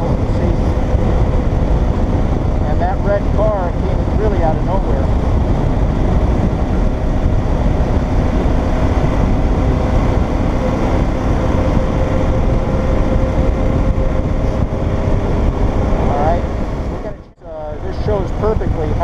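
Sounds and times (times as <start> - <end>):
motorcycle engine drone: 0.0 - 19.0
wind rush on microphone: 0.0 - 19.0.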